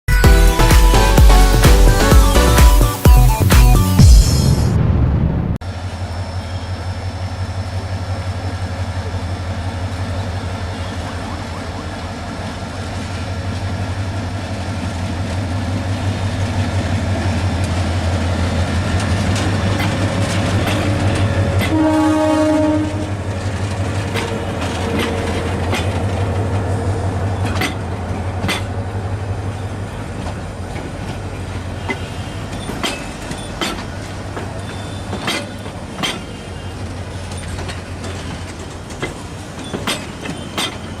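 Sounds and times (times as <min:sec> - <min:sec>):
diesel locomotive droning: 0:04.0 - 0:41.0
wheels clicking over rail joints: 0:12.4 - 0:41.0
train horn blast: 0:21.4 - 0:23.3.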